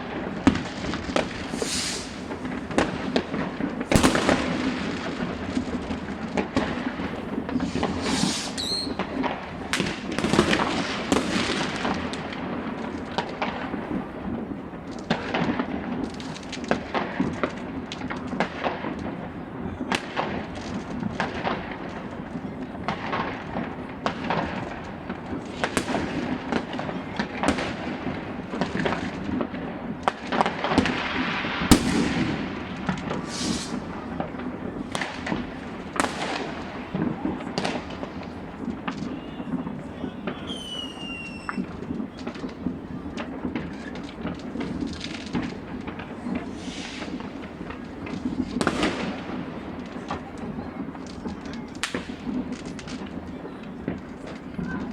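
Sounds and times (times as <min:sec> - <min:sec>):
firework crackle: 0:00.0 - 0:54.9
fireworks banging and popping: 0:00.0 - 0:54.9
high firework whistle: 0:01.4 - 0:02.4, 0:07.6 - 0:09.1, 0:33.1 - 0:34.2, 0:38.9 - 0:42.3, 0:46.5 - 0:47.2.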